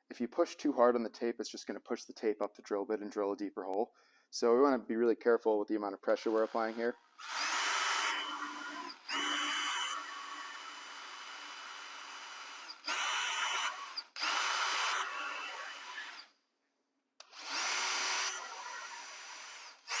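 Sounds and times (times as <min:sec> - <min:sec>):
power drill boring through metal: 0:06.2 - 0:16.3, 0:17.2 - 0:20.0.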